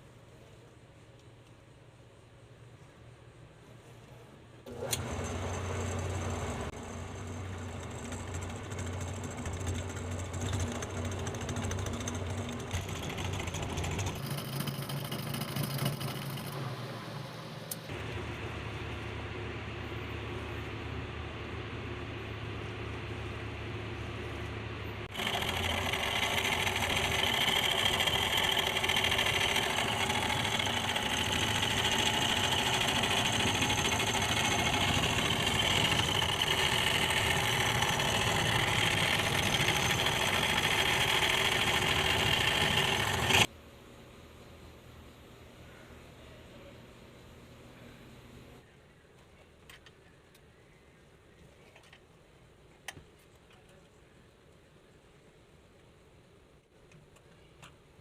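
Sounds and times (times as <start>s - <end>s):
small electric motor humming: 25.1s - 43.5s.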